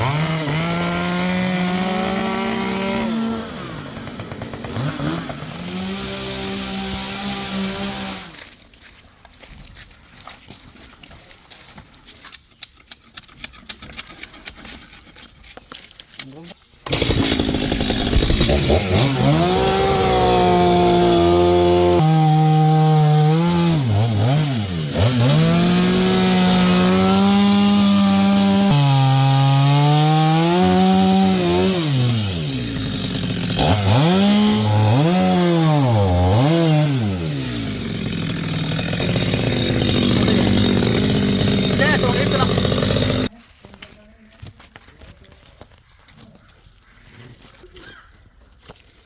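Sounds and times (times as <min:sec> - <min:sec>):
chainsaw cutting wood: 0:00.0 - 0:08.6, 0:16.8 - 0:43.3.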